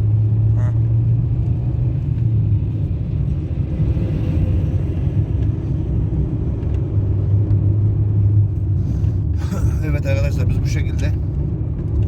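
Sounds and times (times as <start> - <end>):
car engine drone: 0.0 - 12.0
road noise: 0.0 - 12.0.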